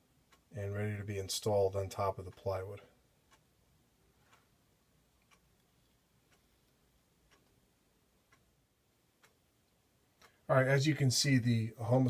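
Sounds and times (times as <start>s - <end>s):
faint regular ticking: 0.0s - 12.0s.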